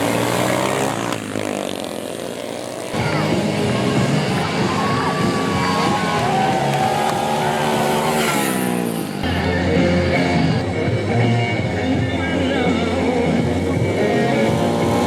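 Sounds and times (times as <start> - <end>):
motorcycle engines racing: 0.0 - 15.0
rock music: 3.0 - 15.0.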